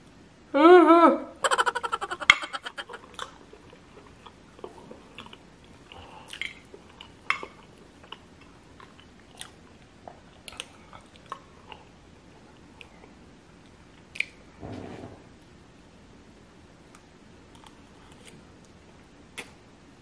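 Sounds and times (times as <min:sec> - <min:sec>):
chewing noodles with mouth clicks: 0:02.8 - 0:12.9.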